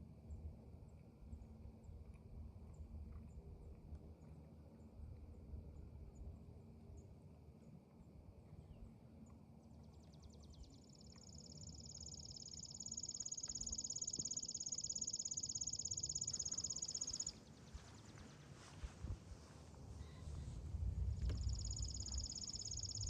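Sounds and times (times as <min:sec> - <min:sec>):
insect pulsing trill: 0:10.7 - 0:18.1, 0:21.1 - 0:23.0.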